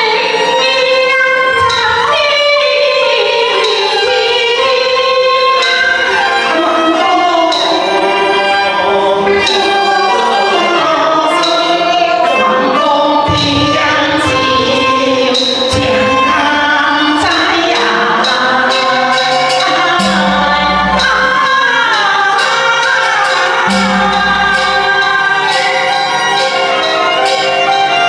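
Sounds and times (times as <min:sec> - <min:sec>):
opera singing: 0:00.0 - 0:28.0
instrumental band accompaniment: 0:03.3 - 0:28.0
sharp percussion stroke: 0:13.2 - 0:28.0.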